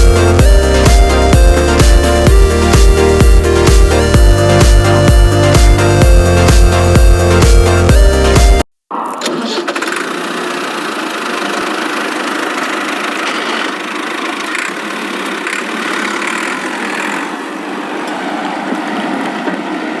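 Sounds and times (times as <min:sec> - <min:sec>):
engine idling: 0:09.8 - 0:17.6.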